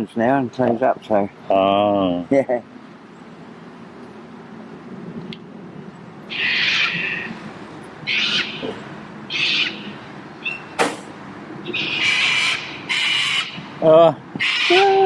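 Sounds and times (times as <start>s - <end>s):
bird screeching: 6.2s - 7.4s, 8.0s - 10.9s, 11.6s - 15.0s.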